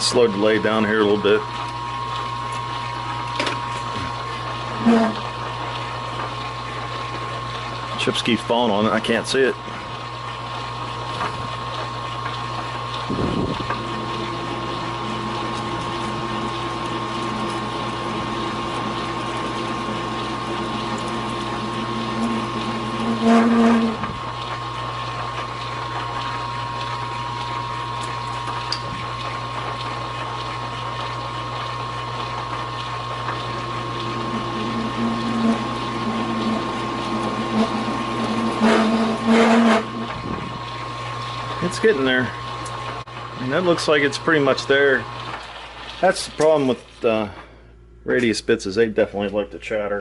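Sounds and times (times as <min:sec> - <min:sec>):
metal lathe humming: 0:00.0 - 0:07.8, 0:13.7 - 0:28.9, 0:31.7 - 0:47.1.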